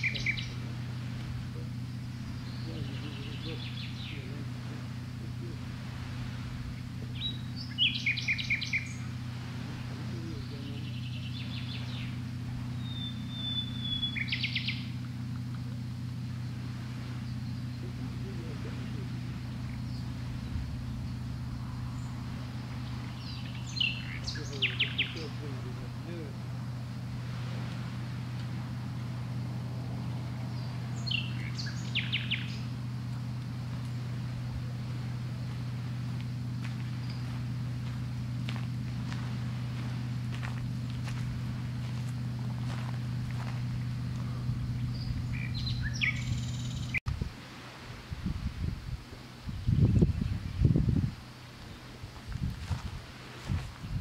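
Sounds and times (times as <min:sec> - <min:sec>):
bird chirping: 0:00.0 - 0:05.5, 0:06.7 - 0:09.2, 0:10.1 - 0:27.0, 0:28.9 - 0:34.8, 0:36.4 - 0:39.1, 0:40.1 - 0:47.0
songbird calling: 0:00.0 - 0:47.1, 0:49.2 - 0:54.0
steady low hum: 0:00.0 - 0:54.0.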